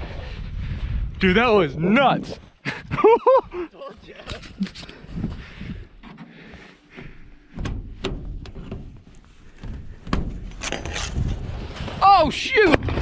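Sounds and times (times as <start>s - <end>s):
sharp knocks and clicks: 7.5s - 10.7s.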